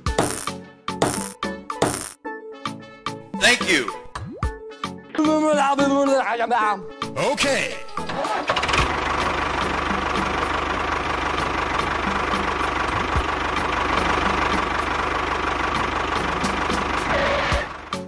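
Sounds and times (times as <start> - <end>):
small engine rattling: 8.0 - 18.0.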